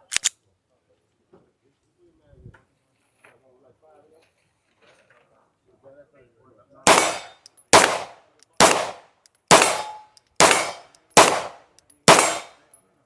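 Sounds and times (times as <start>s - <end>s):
gunshots with ringing tail: 6.9s - 12.6s.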